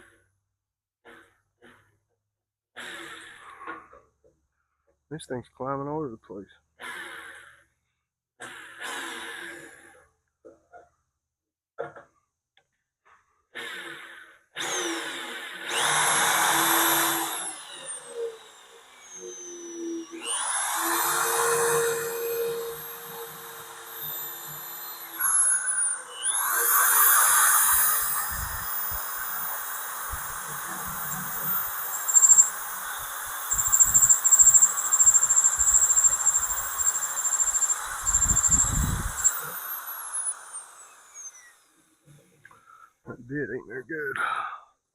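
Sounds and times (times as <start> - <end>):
electric drill boring into steel: 13.6 - 42.2.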